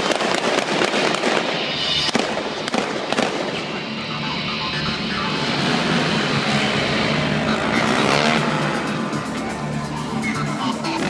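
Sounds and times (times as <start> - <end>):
loud show music: 0.0 - 11.0
steady roar: 4.9 - 9.3.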